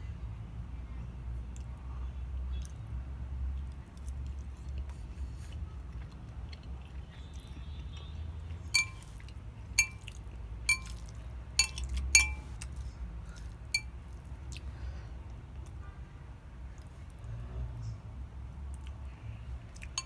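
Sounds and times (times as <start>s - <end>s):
cutlery clinking against a dish: 8.7s - 9.2s, 9.8s - 10.1s, 10.7s - 12.7s, 13.7s - 13.9s.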